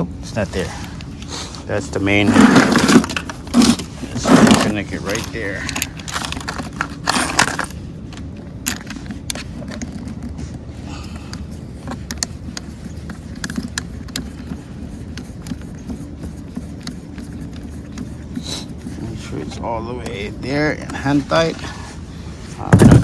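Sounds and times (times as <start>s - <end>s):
low background rumble: 0.0s - 23.0s
hose coupling clicks and scrapes: 2.0s - 7.8s.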